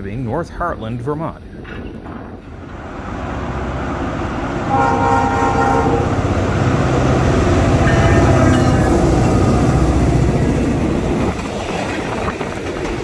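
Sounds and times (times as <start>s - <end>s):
locomotive engine rumble: 1.5s - 13.0s
locomotive air horn: 3.1s - 10.3s.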